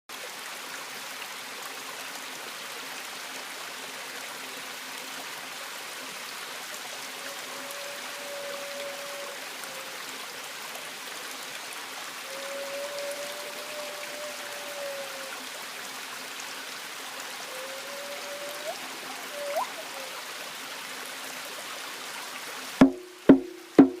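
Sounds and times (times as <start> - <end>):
running water rushing: 0.1 - 24.0
held tone: 7.2 - 9.9, 12.3 - 15.3, 17.5 - 20.1.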